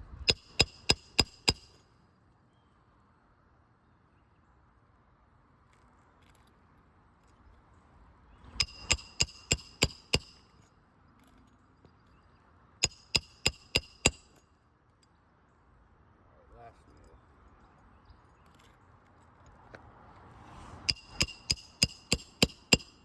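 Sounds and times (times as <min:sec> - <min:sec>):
hammer ringing on steel: 0:20.9 - 0:23.0.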